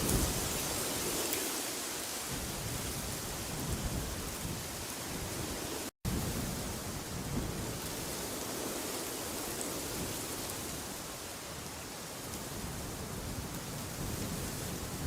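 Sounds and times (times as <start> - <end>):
gusty wind rumbling: 0.0 - 1.3, 2.3 - 11.0.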